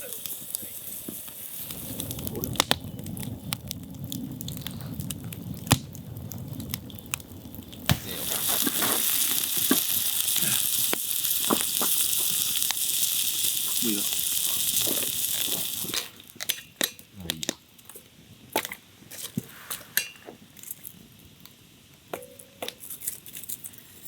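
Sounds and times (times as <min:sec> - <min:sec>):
fire crackling and popping: 0:00.0 - 0:24.0
food sizzling on grill: 0:00.0 - 0:24.0
low rumble: 0:01.6 - 0:08.3.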